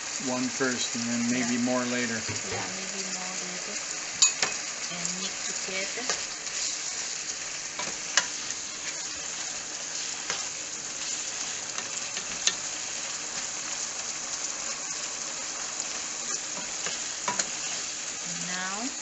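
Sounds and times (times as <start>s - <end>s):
pork sizzling in pot: 0.0s - 19.0s
spatula stirring: 5.8s - 18.8s.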